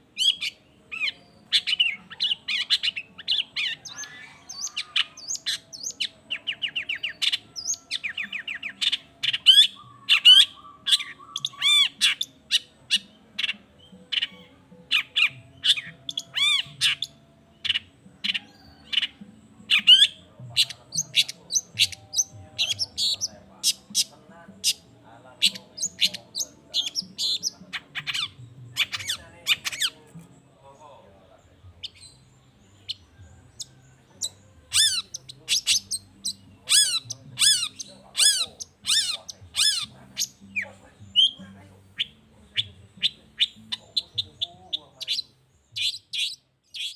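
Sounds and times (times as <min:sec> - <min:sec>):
shrike calling: 0:00.2 - 0:14.3, 0:14.9 - 0:30.0, 0:32.8 - 0:46.9.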